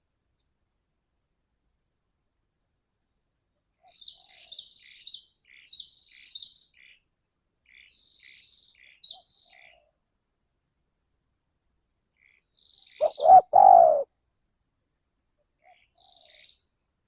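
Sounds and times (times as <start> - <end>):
sharp bird chirping: 12.2 - 14.0
dove cooing: 13.0 - 14.1.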